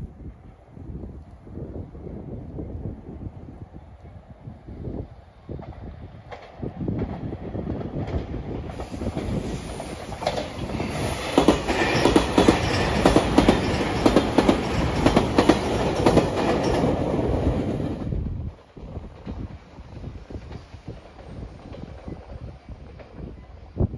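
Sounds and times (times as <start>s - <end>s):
electric train passing: 1.6s - 23.9s
wheels clattering over rail joints: 6.3s - 17.4s.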